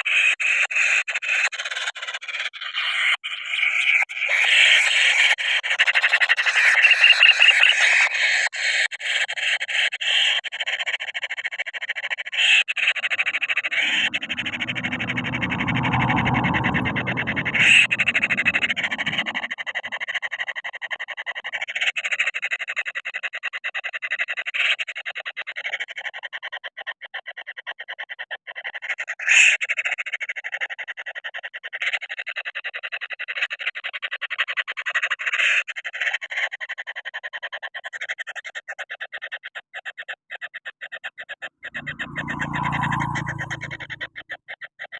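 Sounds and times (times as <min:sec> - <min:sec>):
low rumble: 0:13.8 - 0:19.5, 0:41.6 - 0:44.2.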